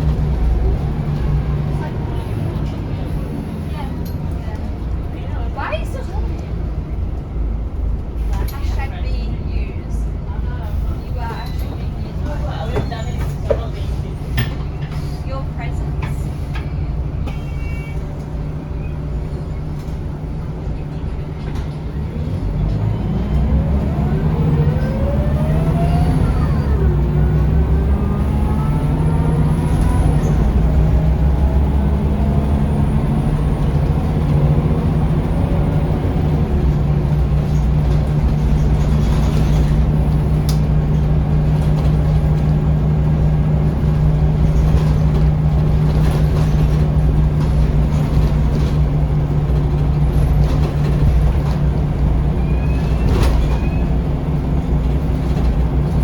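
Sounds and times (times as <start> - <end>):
bus diesel engine accelerating: 0.0 - 56.0
road noise: 0.0 - 56.0.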